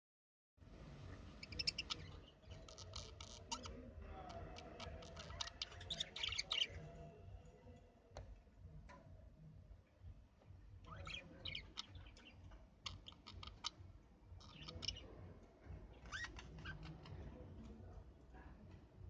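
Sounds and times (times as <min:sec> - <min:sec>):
budgerigars chirping: 0:01.4 - 0:03.8, 0:04.7 - 0:07.0, 0:10.9 - 0:13.8, 0:14.4 - 0:15.2, 0:16.0 - 0:17.1.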